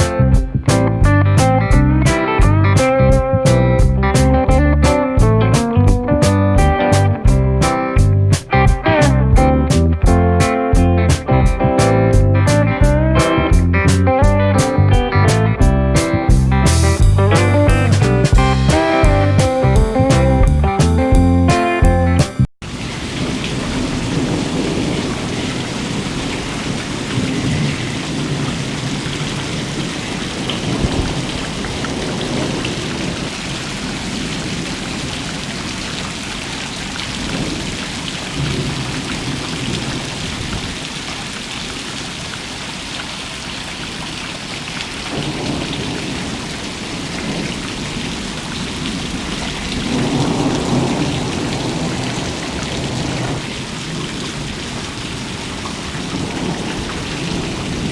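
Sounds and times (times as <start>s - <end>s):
heavy rain hissing: 0.0s - 10.8s, 22.6s - 57.9s
low rumbles: 0.0s - 21.4s.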